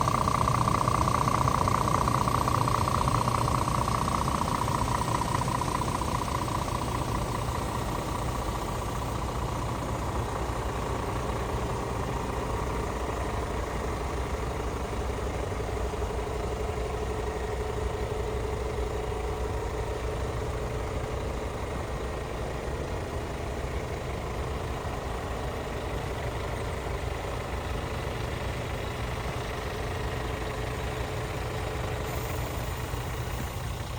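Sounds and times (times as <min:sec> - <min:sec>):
hydraulic whine: 0:00.0 - 0:22.6
diesel truck engine idling: 0:00.0 - 0:33.9.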